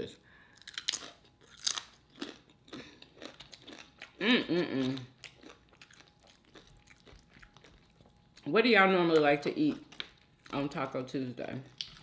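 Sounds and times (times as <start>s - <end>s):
chips crunching while chewed: 0.6s - 8.4s.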